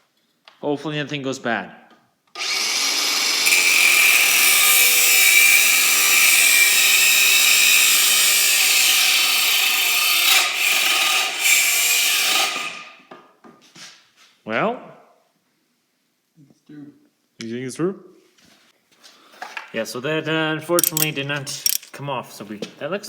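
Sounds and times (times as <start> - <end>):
power tool cutting metal: 2.4 - 13.0.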